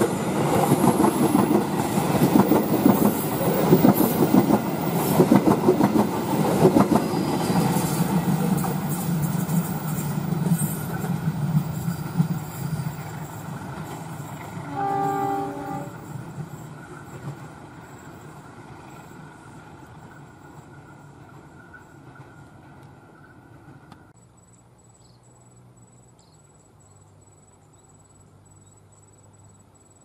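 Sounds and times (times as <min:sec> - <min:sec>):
train wheels clicking over joints: 0:00.0 - 0:14.7
train horn: 0:14.5 - 0:16.2.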